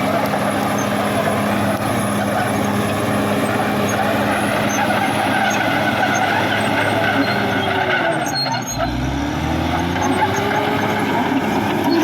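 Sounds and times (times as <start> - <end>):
bulldozer diesel engine running: 0.0 - 12.0.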